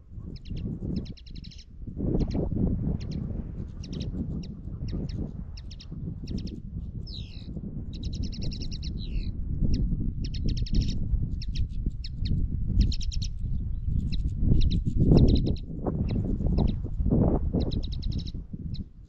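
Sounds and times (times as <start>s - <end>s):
wind rumble on microphone: 0.0s - 19.0s
small birds chirping: 0.2s - 16.8s, 17.5s - 18.9s
bird trilling: 17.6s - 18.3s.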